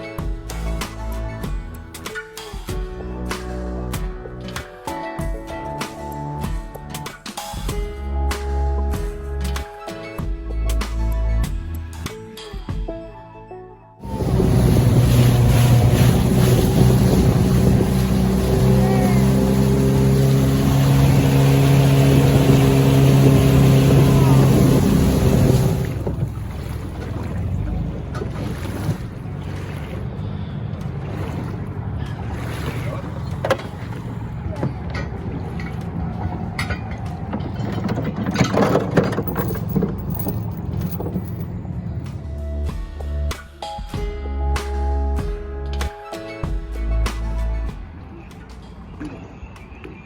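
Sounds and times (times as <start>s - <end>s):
background music: 0.0s - 25.8s, 33.6s - 50.0s
rushing wind: 14.0s - 29.4s
outboard motor running: 14.0s - 41.4s
water noise: 14.0s - 42.6s.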